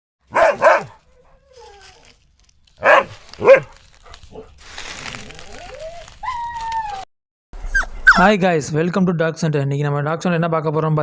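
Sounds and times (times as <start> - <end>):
dog barking: 0.3 - 1.4, 2.8 - 4.6.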